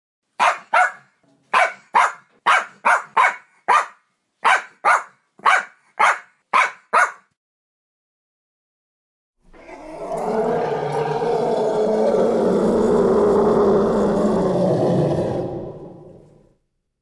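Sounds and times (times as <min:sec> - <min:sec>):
dog barking: 0:00.4 - 0:07.3.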